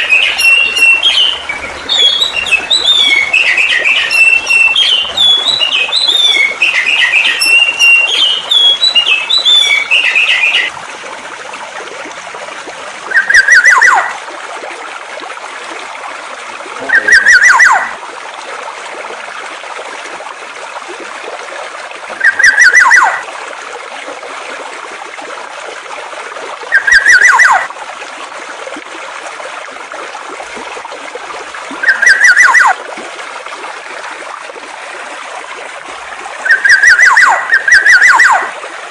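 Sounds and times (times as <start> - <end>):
songbird chirping rapidly: 0.0 - 10.7, 13.1 - 14.1, 16.8 - 17.9, 22.2 - 23.2, 26.8 - 27.7, 31.8 - 32.7, 36.4 - 38.5
flowing water rushing: 0.0 - 38.9
bird calls with falling note: 13.1 - 14.1, 16.8 - 17.9, 22.2 - 23.2, 26.7 - 27.7, 31.8 - 32.8, 36.4 - 38.5.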